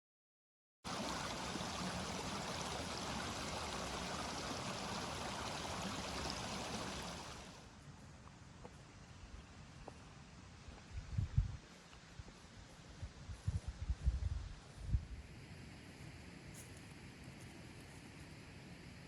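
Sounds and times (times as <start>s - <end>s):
rushing water: 0.9s - 7.6s.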